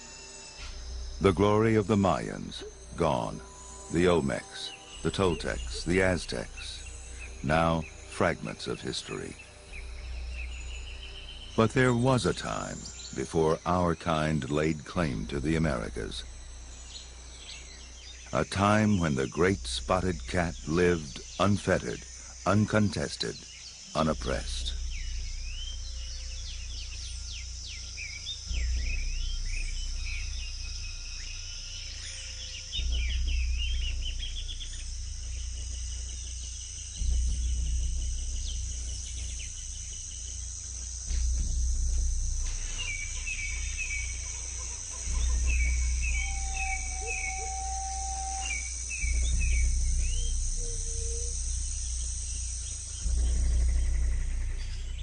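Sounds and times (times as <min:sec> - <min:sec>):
high insect drone: 0:00.0 - 0:55.0
chirping bird calls: 0:42.4 - 0:55.0.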